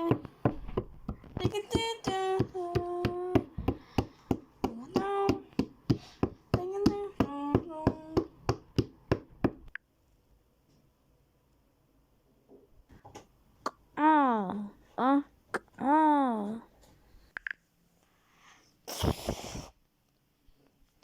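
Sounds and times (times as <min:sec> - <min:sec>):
high-pitched voice singing: 0:01.4 - 0:03.5.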